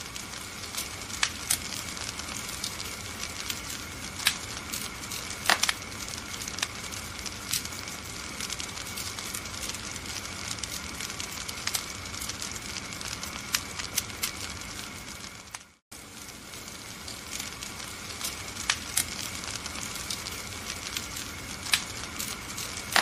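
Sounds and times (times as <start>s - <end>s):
wood fire crackling: 0.0s - 23.0s.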